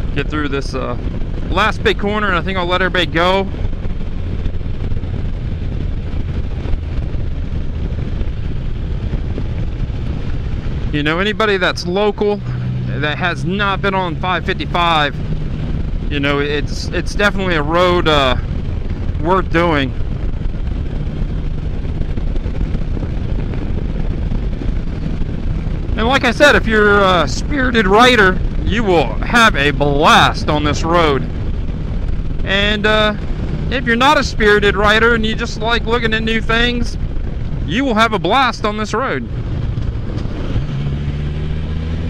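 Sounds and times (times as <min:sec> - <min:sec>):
motorcycle engine running: 0:00.0 - 0:42.0
wind on microphone: 0:00.0 - 0:42.0.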